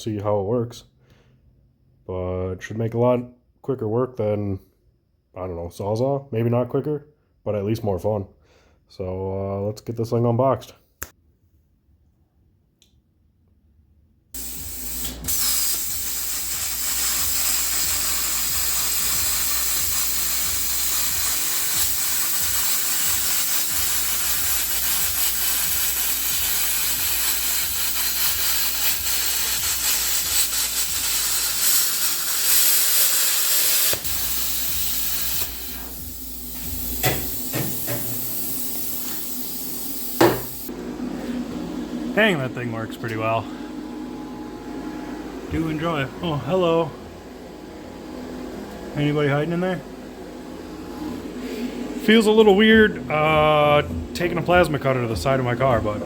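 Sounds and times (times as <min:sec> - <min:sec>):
plasma cutter hissing: 0:14.4 - 0:40.7.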